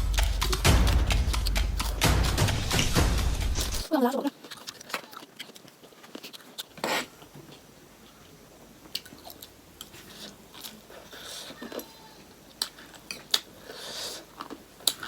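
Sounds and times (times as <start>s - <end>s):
chewing and biting: 4.1s - 8.2s, 8.9s - 15.0s.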